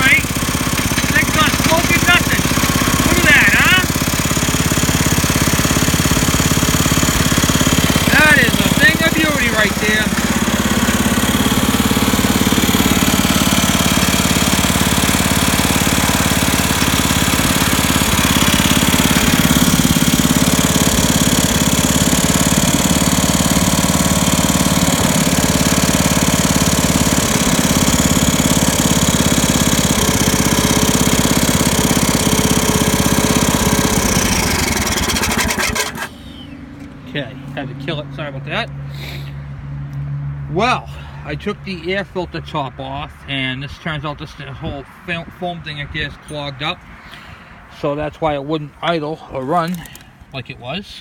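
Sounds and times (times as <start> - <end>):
garden tractor engine running: 0.0 - 37.9, 48.8 - 50.2.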